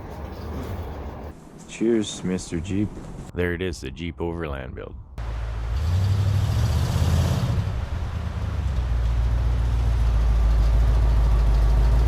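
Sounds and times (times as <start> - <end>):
vehicle engine rumbling: 5.1 - 12.0.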